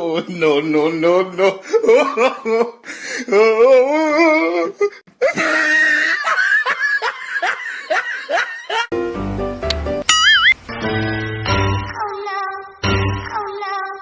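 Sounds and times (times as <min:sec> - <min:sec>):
person laughing hard: 0:01.6 - 0:03.6, 0:04.2 - 0:08.9
music: 0:08.9 - 0:13.6.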